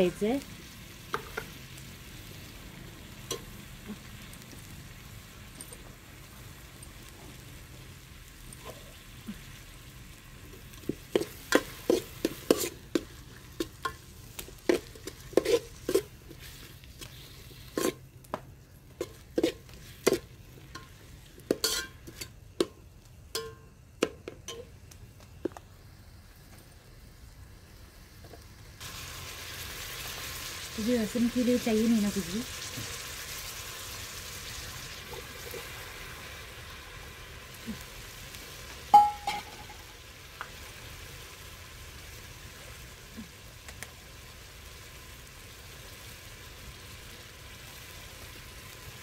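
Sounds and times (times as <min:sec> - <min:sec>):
onion and tomato sizzling: 0:00.0 - 0:49.0
metal spoon scraping a pot: 0:11.2 - 0:14.0, 0:14.7 - 0:18.0, 0:19.0 - 0:22.4.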